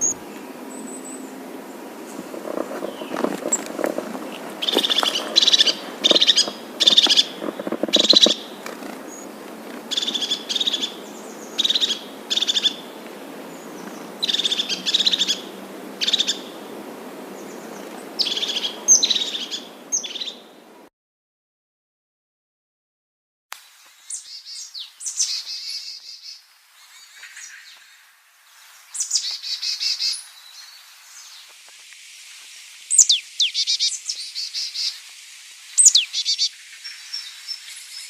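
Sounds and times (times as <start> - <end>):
bird high calls: 0.0 - 20.6, 32.9 - 35.0, 35.8 - 38.0.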